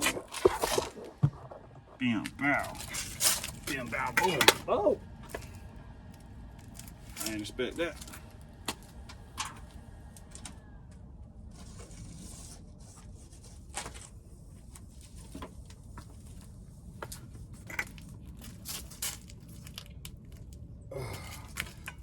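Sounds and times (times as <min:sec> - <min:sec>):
welding arc crackling and popping: 0:00.0 - 0:04.6
low steady rumble: 0:00.0 - 0:22.0.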